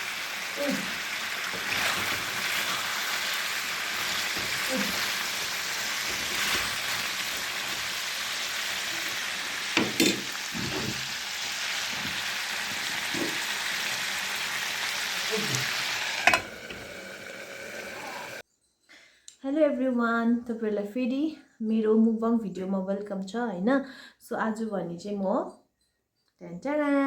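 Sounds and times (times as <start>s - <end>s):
food sizzling in a pan: 0.0s - 18.4s
utensil clinking against pan: 9.8s - 10.3s.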